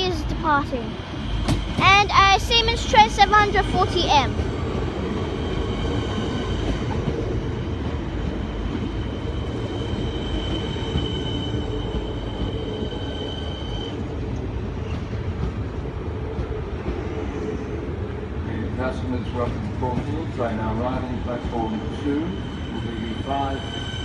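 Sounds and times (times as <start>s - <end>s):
train wheels rumbling on rail: 0.0s - 24.0s
high-pitched wheel squeal: 9.0s - 14.0s, 21.6s - 24.0s.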